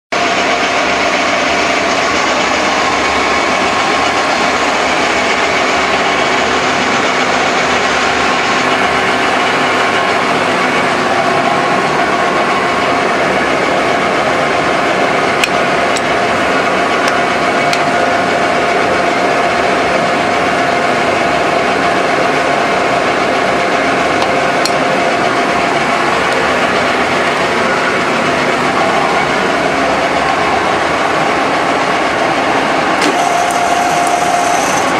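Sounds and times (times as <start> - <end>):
machine running: 0.1 - 34.9.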